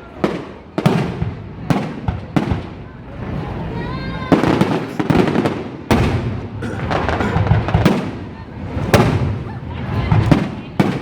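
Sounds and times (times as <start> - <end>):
firework bangs: 0.0 - 11.0
low rumbling: 2.6 - 11.0.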